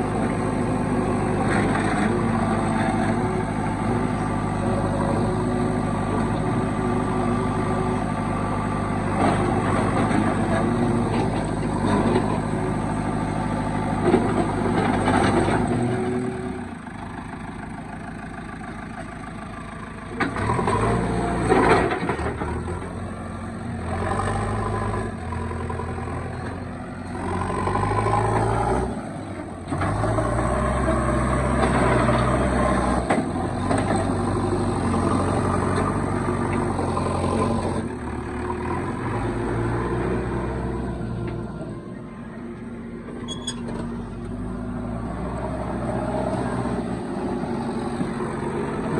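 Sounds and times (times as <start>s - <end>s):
backhoe diesel engine revving: 0.0s - 48.9s.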